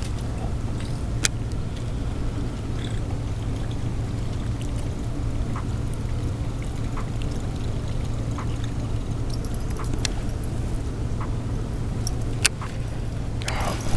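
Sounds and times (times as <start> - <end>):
low rumble and hiss on water: 0.0 - 13.9
faint ticks: 6.7 - 11.4.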